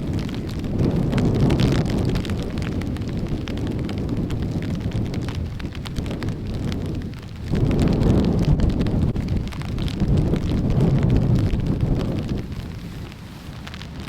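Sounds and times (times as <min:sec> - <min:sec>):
heavy rain pattering: 0:00.0 - 0:14.0
wind buffeting microphone: 0:00.0 - 0:14.0.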